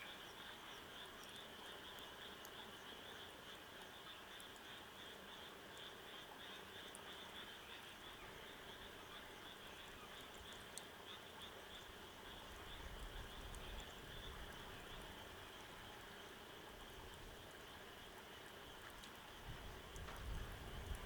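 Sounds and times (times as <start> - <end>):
faint ticks: 0.0 - 21.0.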